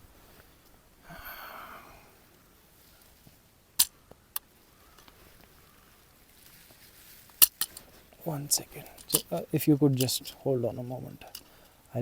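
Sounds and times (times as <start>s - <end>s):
handling rustle: 2.2s - 11.9s.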